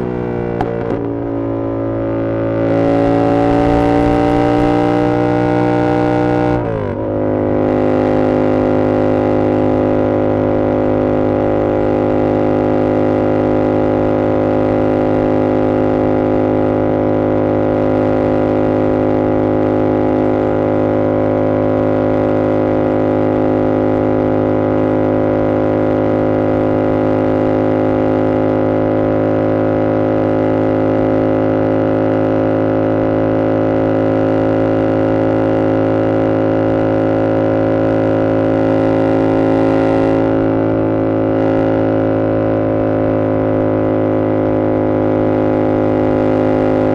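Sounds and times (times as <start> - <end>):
motorcycle engine drone: 0.0 - 46.9.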